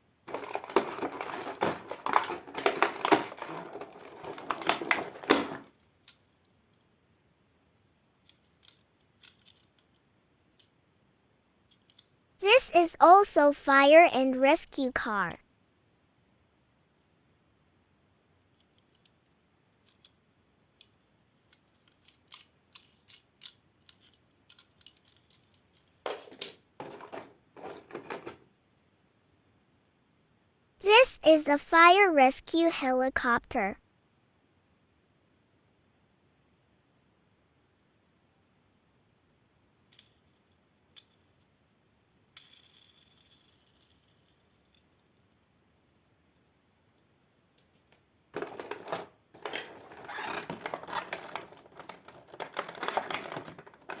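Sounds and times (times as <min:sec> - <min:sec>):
plastic toy scraping and rattling: 0:00.3 - 0:05.8, 0:21.6 - 0:28.5, 0:48.4 - 0:54.0.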